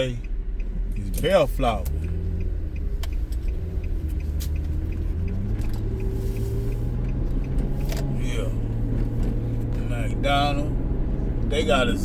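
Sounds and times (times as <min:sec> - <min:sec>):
faint even ticking: 0:00.0 - 0:08.9
car engine and road noise: 0:00.0 - 0:12.0.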